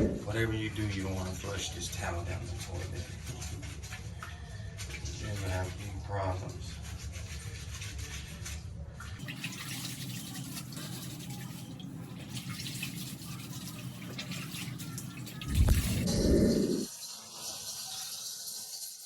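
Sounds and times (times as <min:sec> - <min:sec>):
water running into toilet bowl: 0:09.2 - 0:19.0.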